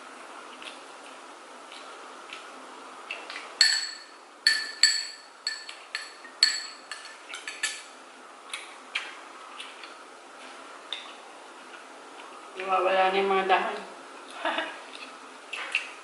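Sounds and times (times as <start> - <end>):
utensils clinking against a dish: 3.6 - 8.0.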